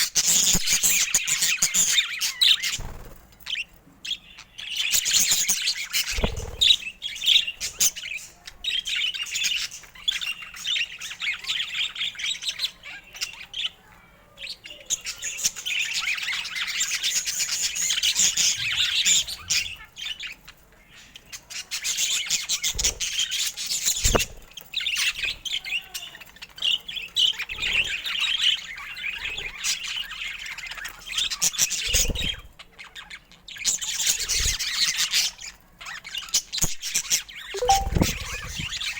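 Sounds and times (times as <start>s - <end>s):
budgerigars chirping and warbling: 14.5s - 24.4s.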